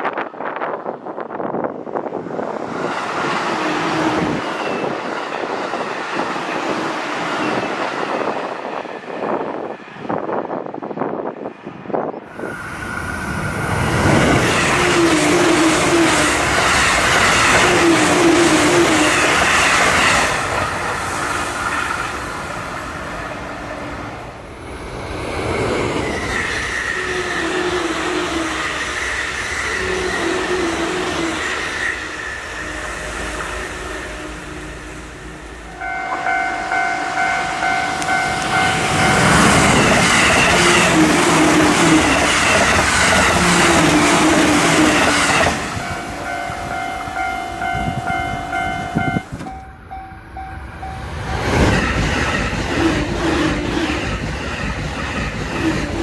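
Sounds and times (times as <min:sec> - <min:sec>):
train rushing past: 0:00.0 - 0:56.0
steady train horn: 0:14.2 - 0:20.1, 0:26.7 - 0:42.2.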